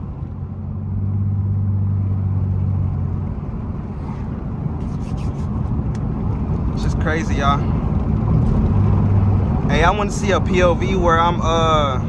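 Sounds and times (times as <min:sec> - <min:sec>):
car exhaust drone and burble: 0:00.0 - 0:12.0
exhaust cracks: 0:03.8 - 0:11.2.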